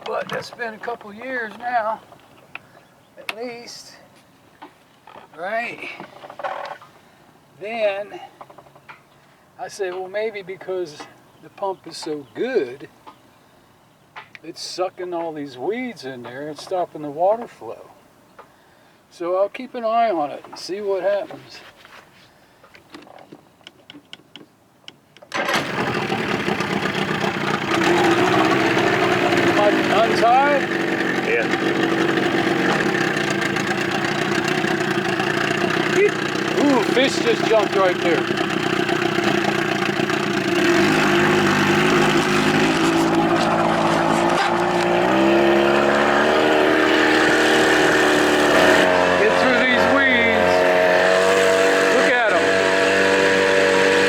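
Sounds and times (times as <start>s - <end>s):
outboard motor running: 0.0s - 2.5s, 25.3s - 54.0s.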